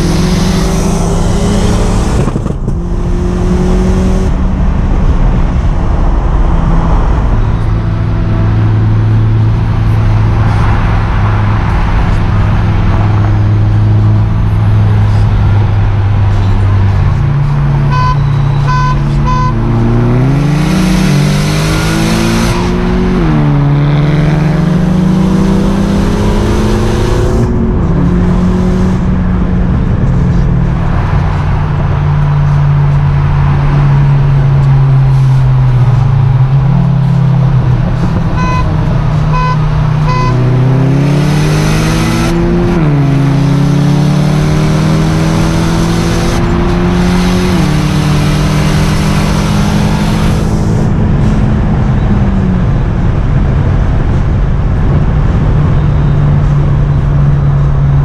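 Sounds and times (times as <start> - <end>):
car engine under load: 0.0 - 58.0
short beeps: 17.8 - 19.6, 38.4 - 40.5.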